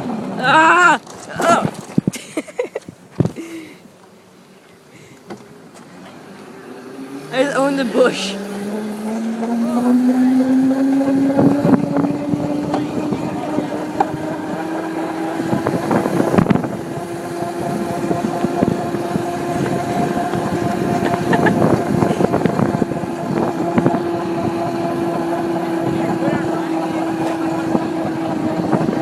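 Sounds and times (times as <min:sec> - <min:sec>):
small engine running under throttle: 0:06.1 - 0:29.0.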